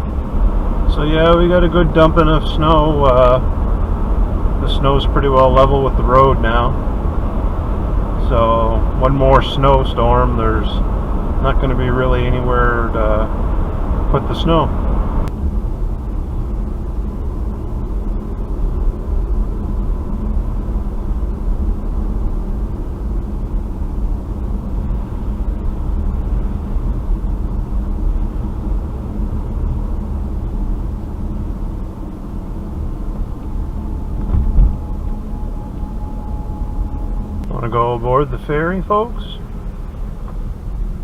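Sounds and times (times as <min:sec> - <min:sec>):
car engine and tyre rumble: 0:00.0 - 0:41.0
thump: 0:34.2 - 0:34.8.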